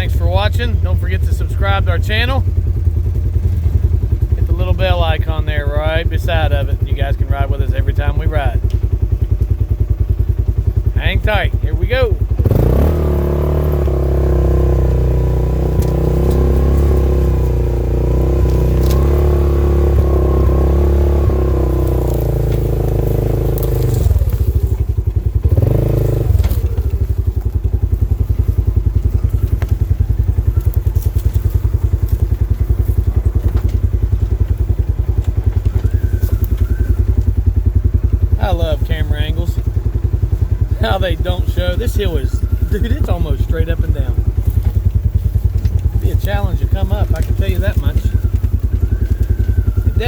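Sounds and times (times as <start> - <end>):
vehicle engine running: 0.0 - 50.0.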